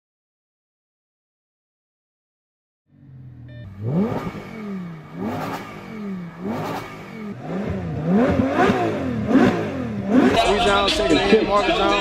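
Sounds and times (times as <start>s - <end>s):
car engine revving: 2.9s - 12.0s.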